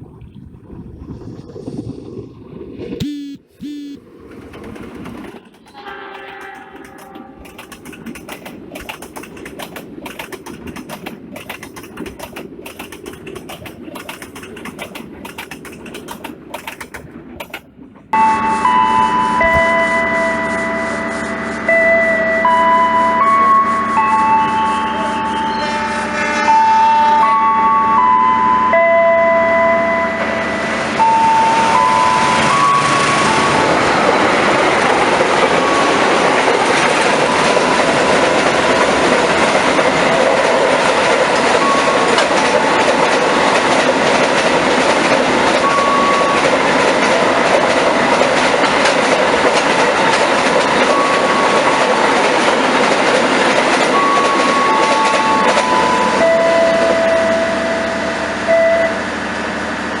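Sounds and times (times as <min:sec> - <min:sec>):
short steady tones: 0:03.0 - 0:04.1, 0:05.4 - 0:09.5
train wheels rumbling on rail: 0:04.0 - 0:28.1, 0:29.8 - 1:00.0.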